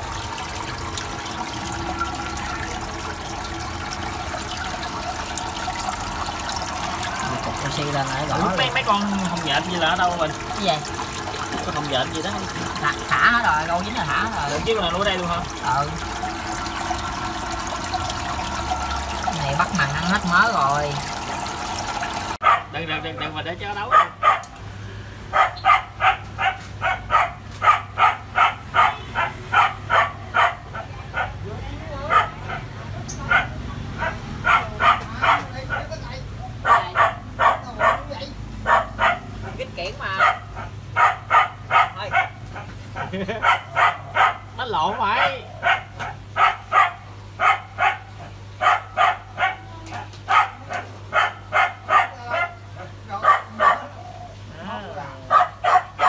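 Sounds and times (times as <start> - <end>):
dog barking rapidly: 22.3 - 22.8, 23.9 - 24.6, 25.3 - 31.4, 32.1 - 44.6, 45.2 - 54.0, 55.3 - 56.0.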